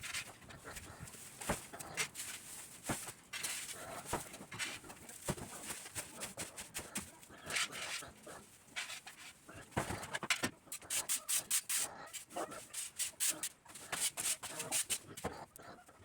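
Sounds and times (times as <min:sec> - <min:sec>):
dry hay rustling and crackling: 0:00.0 - 0:10.1.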